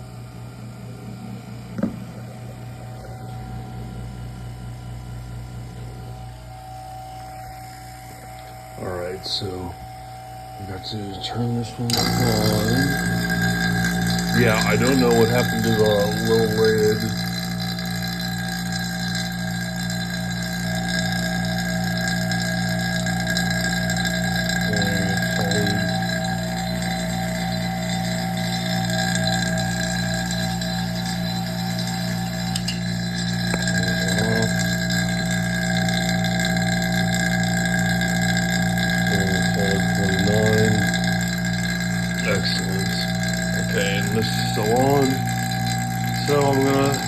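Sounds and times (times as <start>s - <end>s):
vacuum pump motor hum: 0.0s - 47.0s.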